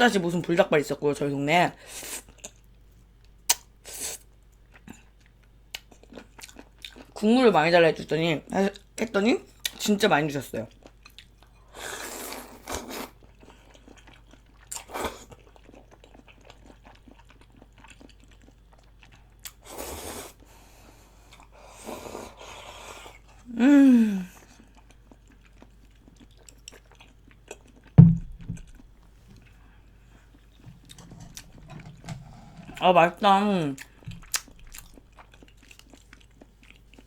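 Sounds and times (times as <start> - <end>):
chewing and slurping: 10.7 - 23.4, 24.4 - 28.0, 30.3 - 32.8, 33.8 - 37.0
sharp thump: 28.0 - 28.8.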